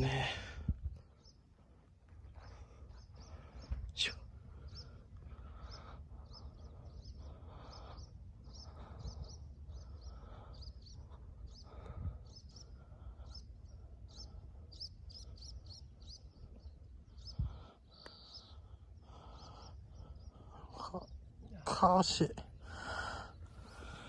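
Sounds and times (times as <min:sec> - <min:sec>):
wind rumble on microphone: 0:00.0 - 0:01.2, 0:02.2 - 0:17.8
small birds chirping: 0:00.0 - 0:24.0.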